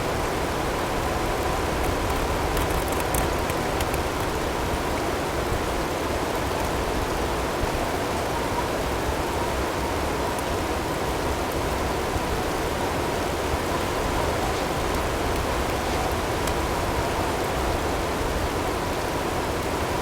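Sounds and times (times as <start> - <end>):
wind-driven snow and hail rushing: 0.0 - 20.0
faint ticks: 1.8 - 4.4.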